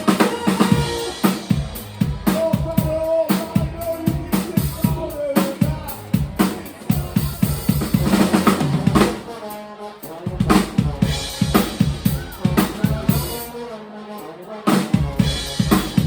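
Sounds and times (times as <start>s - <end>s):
held pitched notes: 0.0s - 6.1s
drum kit busy beat: 0.0s - 16.0s
live band music: 0.0s - 16.0s.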